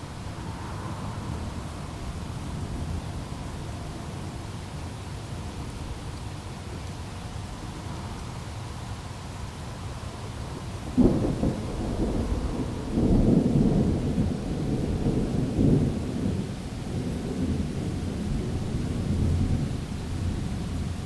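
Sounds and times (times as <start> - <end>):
rolling thunder: 0.0 - 4.5, 10.8 - 20.6
thunderclap: 11.0 - 16.4.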